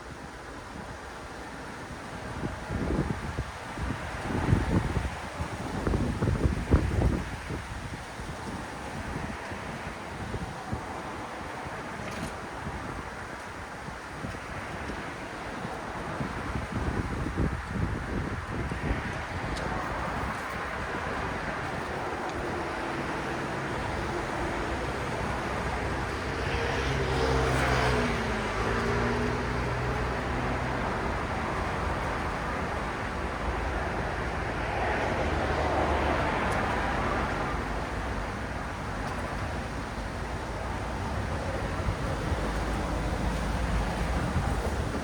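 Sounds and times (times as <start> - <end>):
road traffic noise: 0.0 - 45.0
vehicle passing by: 22.9 - 38.4.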